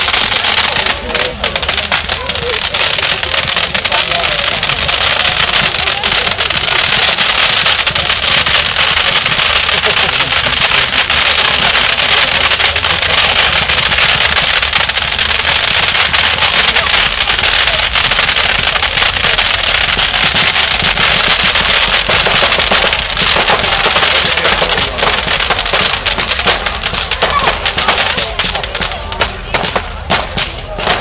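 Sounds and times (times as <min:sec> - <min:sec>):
fireworks crackling and banging: 0:00.0 - 0:31.0.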